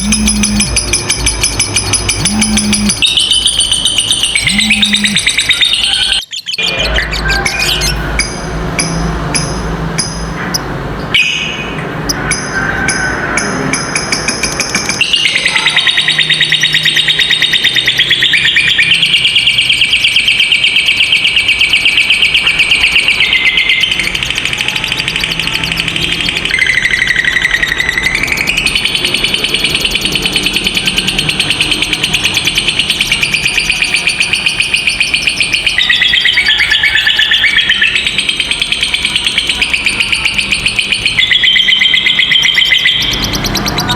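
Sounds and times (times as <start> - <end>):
lovebird buzzy trill: 0.0 - 6.3
bird chirping: 0.0 - 43.9.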